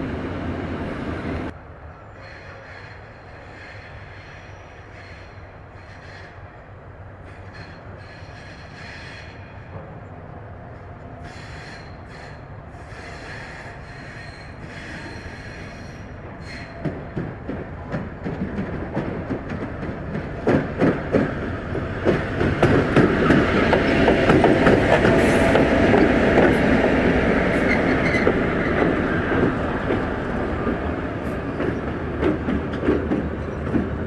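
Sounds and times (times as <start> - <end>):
train rumbling on track: 0.0 - 34.0
train wheels squealing: 2.0 - 6.6, 7.3 - 9.8, 11.2 - 17.1, 25.1 - 29.2
wheels clacking over rail joints: 16.6 - 34.0.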